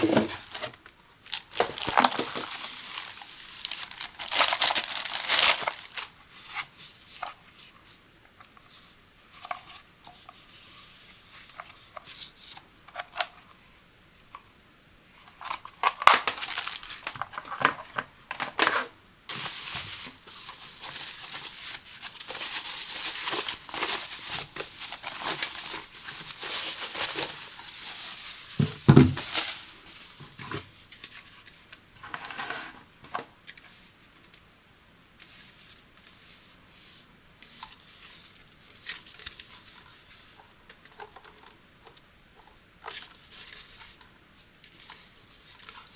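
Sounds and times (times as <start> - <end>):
paper and plastic crinkling: 0.0 - 7.4, 15.2 - 32.7, 37.4 - 45.9.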